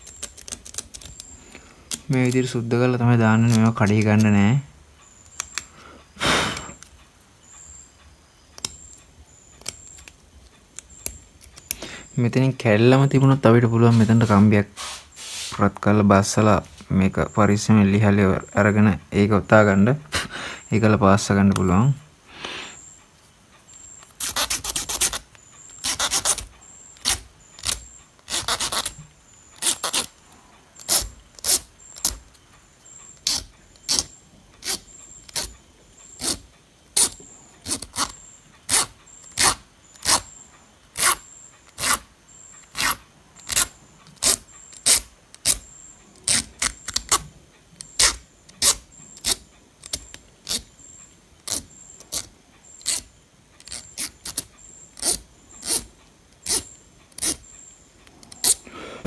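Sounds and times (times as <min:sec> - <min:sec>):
scrubbing rust off metal: 0:11.5 - 0:16.8.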